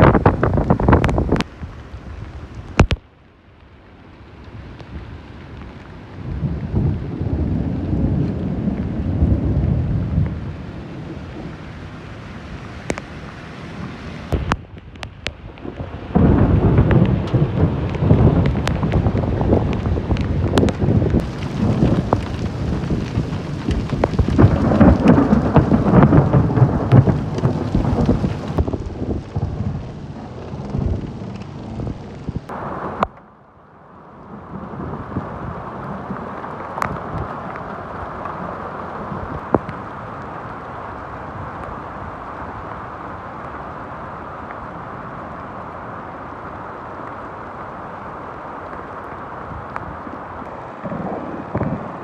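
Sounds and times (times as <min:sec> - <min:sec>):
low rumble with buffeting: 0:00.0 - 0:03.1, 0:04.6 - 0:40.9
steady hiss of falling rain: 0:00.0 - 0:52.0.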